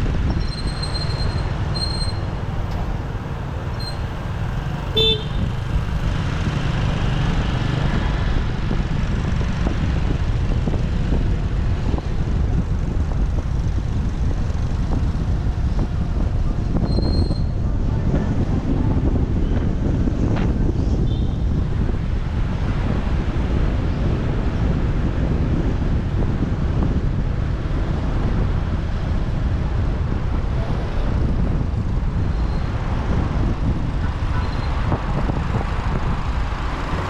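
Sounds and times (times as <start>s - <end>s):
motorbike and traffic rumble: 0.0s - 37.0s
wind on microphone: 0.0s - 37.0s
vehicle horn toot: 4.8s - 5.7s.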